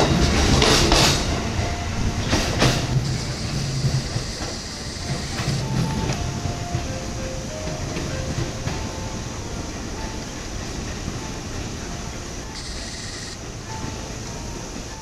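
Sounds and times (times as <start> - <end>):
electric train rumbling on rails: 0.0 - 15.0
faint train whines: 0.0 - 15.0
wheel clacks: 2.2 - 8.9.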